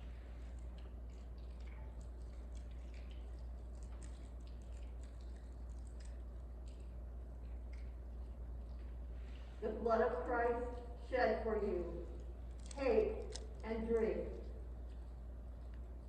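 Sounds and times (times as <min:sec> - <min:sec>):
low electrical hum: 0:00.0 - 0:16.0
small clicks and rustles: 0:00.2 - 0:09.6, 0:12.1 - 0:13.7, 0:14.3 - 0:16.0.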